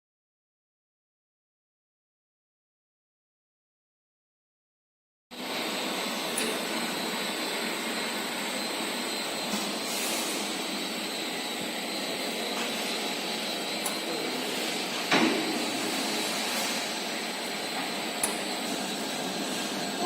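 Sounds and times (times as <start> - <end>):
steady machine noise: 5.4 - 20.0.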